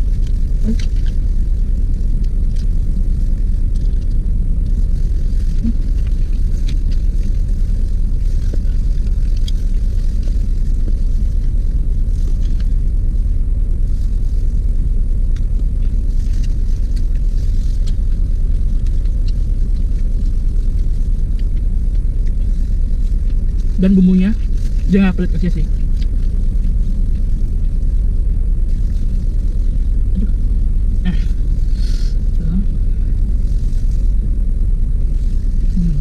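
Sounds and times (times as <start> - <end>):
chewing: 0.0 - 13.1, 15.3 - 28.0
car engine idling: 0.0 - 36.0
plastic glove rustling: 22.3 - 30.1, 33.1 - 36.0.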